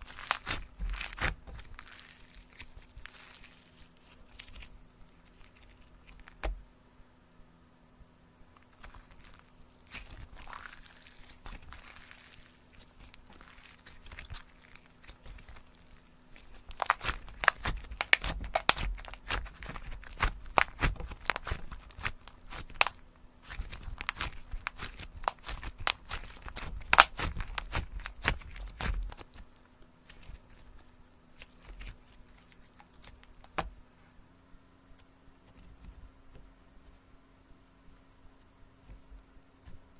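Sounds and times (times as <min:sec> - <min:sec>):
slime squeezed crackling and popping: 0:00.0 - 0:06.4, 0:08.6 - 0:33.6.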